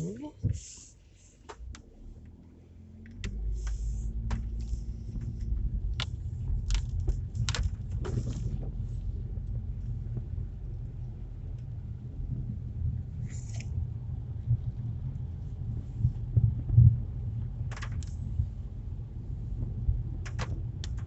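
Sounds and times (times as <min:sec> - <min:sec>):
car road and engine rumble: 0:00.0 - 0:21.0
light clicks and rattles: 0:03.0 - 0:11.8, 0:16.1 - 0:18.6, 0:19.4 - 0:21.0.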